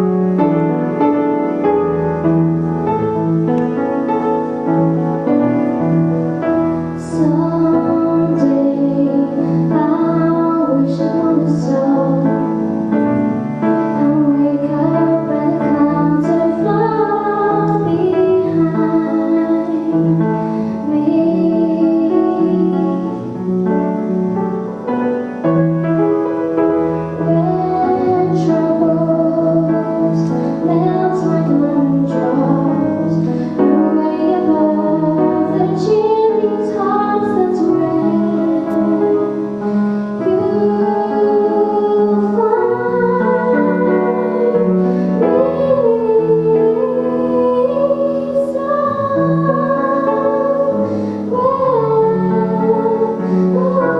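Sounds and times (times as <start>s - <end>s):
piano accompaniment: 0.0s - 53.9s
woman singing: 7.0s - 12.6s, 13.8s - 23.3s, 27.2s - 39.6s, 40.2s - 53.9s.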